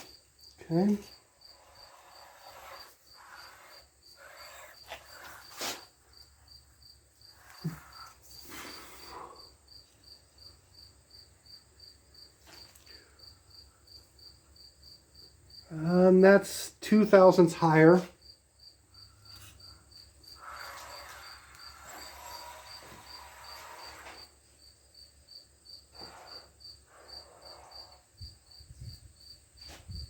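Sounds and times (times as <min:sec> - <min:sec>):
cricket chirping: 0:00.0 - 0:16.4, 0:17.2 - 0:30.0
tool scraping on metal: 0:01.7 - 0:06.0, 0:20.4 - 0:24.3.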